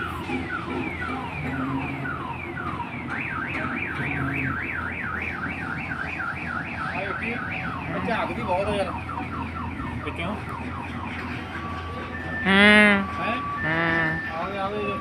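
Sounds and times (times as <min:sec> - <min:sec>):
electronic siren alarm: 0:00.0 - 0:15.0.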